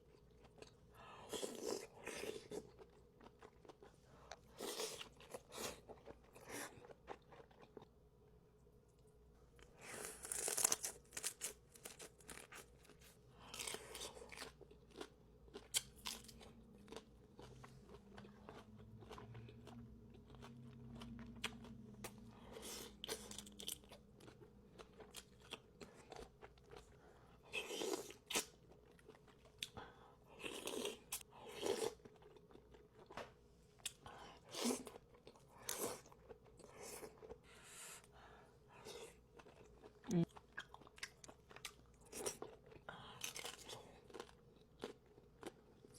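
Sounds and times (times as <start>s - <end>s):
chewing: 10.2s - 29.8s, 38.8s - 45.9s.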